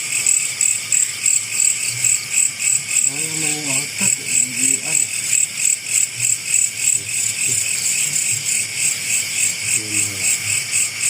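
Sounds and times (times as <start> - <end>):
insects chirping: 0.0 - 11.0
faint voice: 3.1 - 5.1, 9.8 - 10.6.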